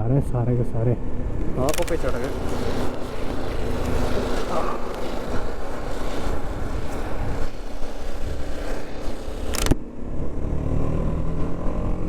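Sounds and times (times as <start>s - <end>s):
wind rush on microphone: 1.0s - 10.5s.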